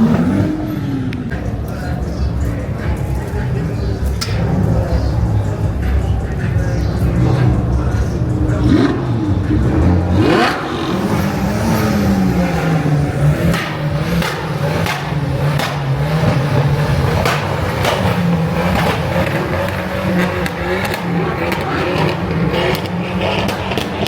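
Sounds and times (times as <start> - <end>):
car engine running: 0.0 - 24.0
crowd din: 0.0 - 24.0.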